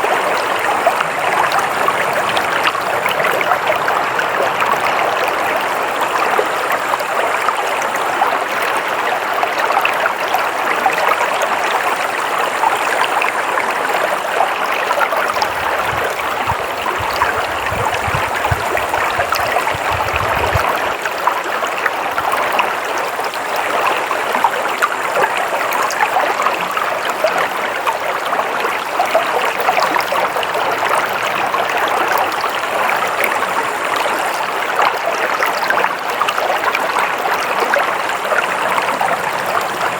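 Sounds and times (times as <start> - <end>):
stream water flowing: 0.0 - 39.9
low rumble: 15.4 - 20.9.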